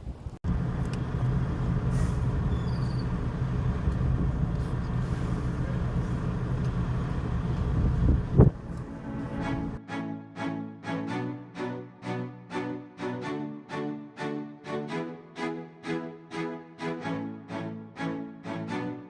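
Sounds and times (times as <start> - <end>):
diesel truck engine running: 0.4 - 9.8.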